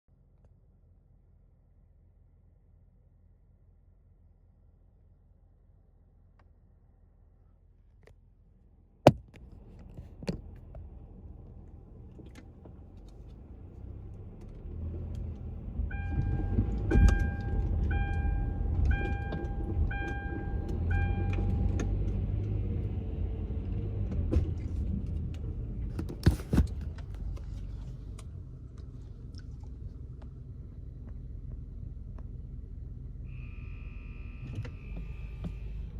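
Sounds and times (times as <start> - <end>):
car engine rumbling: 6.0 - 35.9
electronic beep: 15.9 - 21.8.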